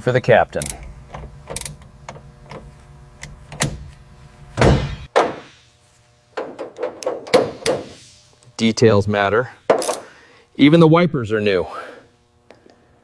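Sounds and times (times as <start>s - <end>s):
steady background hum: 0.0s - 13.0s
car door shutting: 1.1s - 3.9s.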